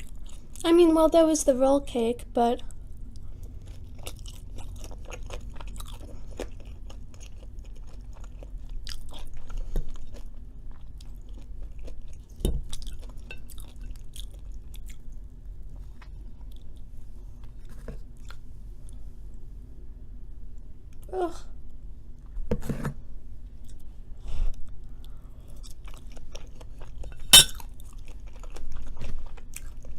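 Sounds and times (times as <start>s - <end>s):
chewing soft fries: 0.0s - 0.8s, 2.7s - 19.1s, 23.6s - 29.9s.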